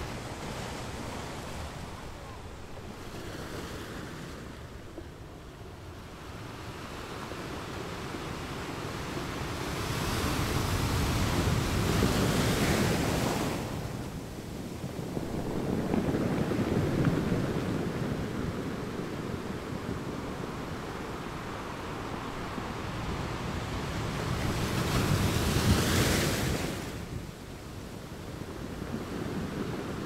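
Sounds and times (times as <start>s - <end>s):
small waves breaking on beach: 0.0s - 5.4s.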